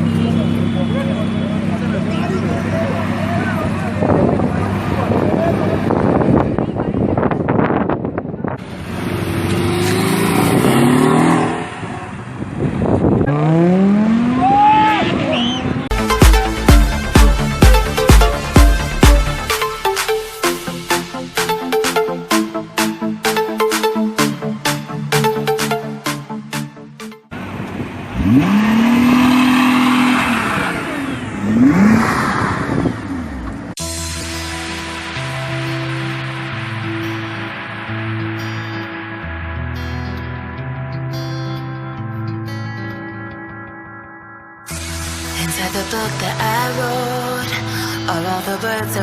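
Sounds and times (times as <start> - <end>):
engine accelerating hard: 0.0 - 7.2, 8.6 - 19.6, 27.3 - 39.7
road and wind noise: 0.0 - 49.0
background music: 15.9 - 27.3, 33.8 - 49.0.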